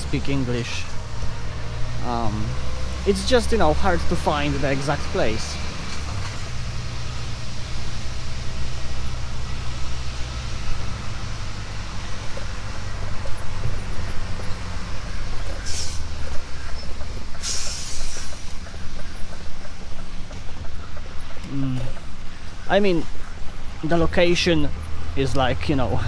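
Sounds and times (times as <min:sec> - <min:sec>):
truck engine running: 0:00.0 - 0:26.0
air brake hisses: 0:15.6 - 0:16.1, 0:17.4 - 0:18.6.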